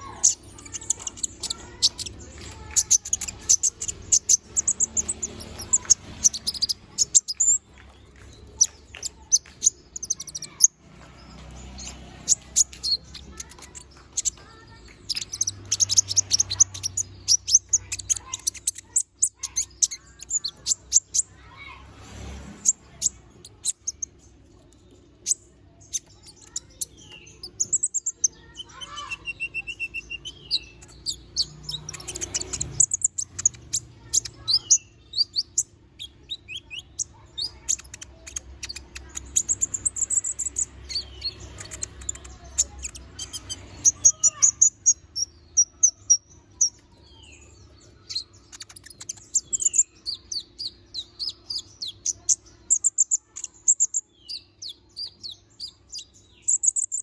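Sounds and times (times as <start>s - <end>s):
small bird chirping and trilling: 0.0s - 57.0s.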